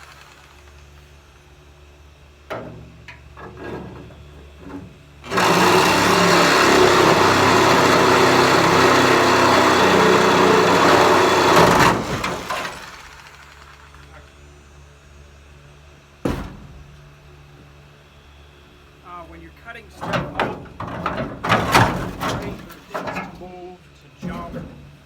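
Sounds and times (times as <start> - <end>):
reciprocating saw cutting sheet metal: 5.2 - 13.4.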